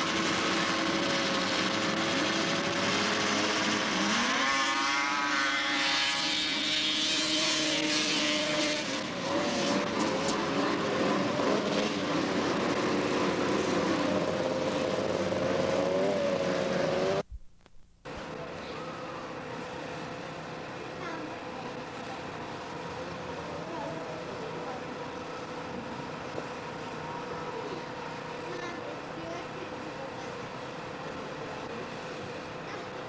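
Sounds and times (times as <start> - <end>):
snowmobile engines at full throttle: 0.0 - 17.2.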